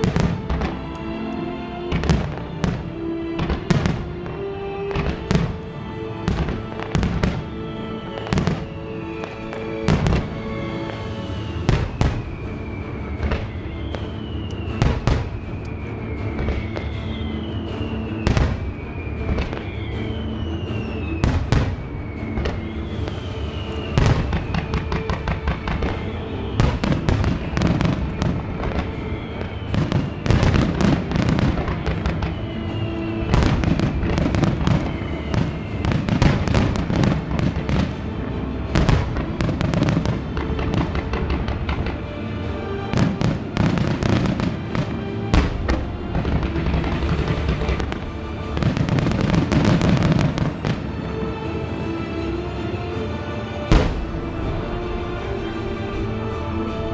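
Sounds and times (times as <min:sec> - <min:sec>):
fireworks bursting: 0:00.0 - 0:01.2, 0:01.9 - 0:51.1, 0:53.7 - 0:56.4
music: 0:00.0 - 0:56.9
falling firework whistles: 0:08.2 - 0:38.0, 0:42.7 - 0:50.9, 0:53.7 - 0:54.8.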